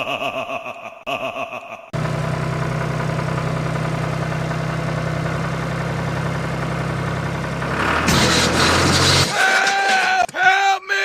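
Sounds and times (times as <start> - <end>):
engine idling: 2.0 - 9.3.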